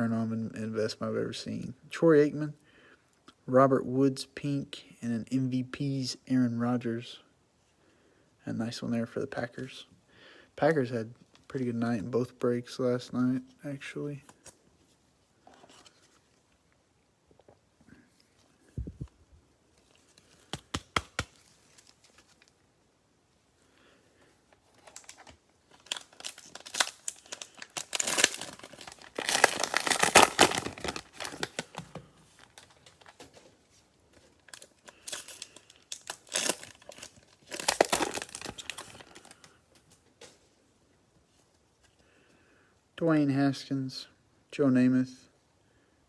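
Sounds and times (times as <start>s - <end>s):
cellophane wrapper crinkling: 19.7s - 22.6s, 24.6s - 39.6s.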